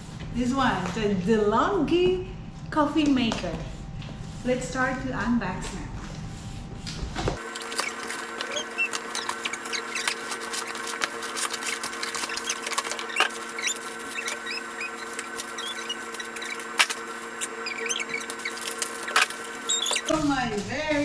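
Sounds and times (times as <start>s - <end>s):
packaging clicks and rustles: 7.4s - 20.1s
short high squeaks: 7.4s - 20.1s
steady low hum: 7.4s - 20.1s.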